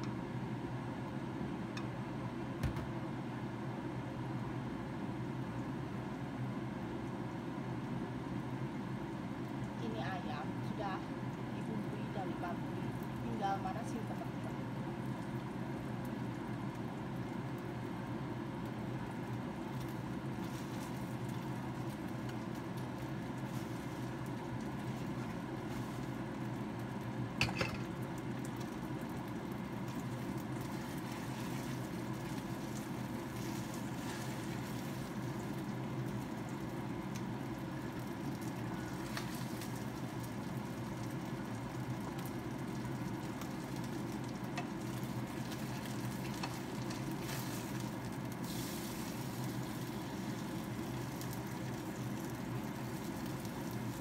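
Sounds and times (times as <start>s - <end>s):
chicken sizzling in a pan: 12.4s - 54.0s
spatula turning meat: 29.7s - 36.5s, 38.8s - 40.2s, 41.9s - 54.0s.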